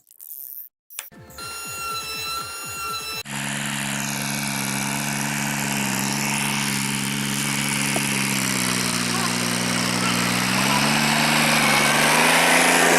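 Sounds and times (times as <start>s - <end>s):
small electric motor humming: 1.3s - 12.9s.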